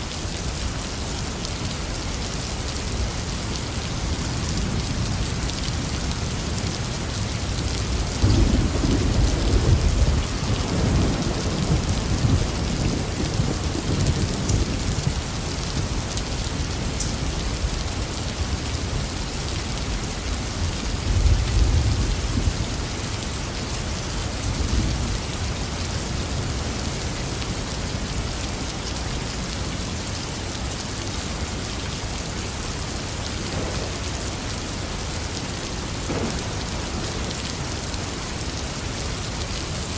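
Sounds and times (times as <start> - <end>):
heavy rain falling: 0.0 - 39.9
rolling thunder: 8.2 - 15.2, 33.4 - 35.1, 35.9 - 38.0.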